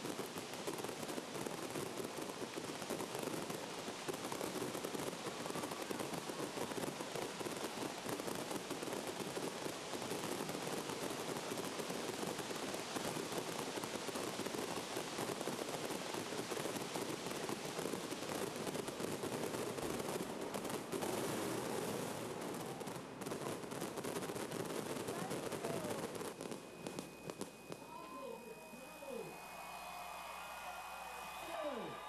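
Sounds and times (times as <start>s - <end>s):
crowd applauding: 27.8s - 32.0s.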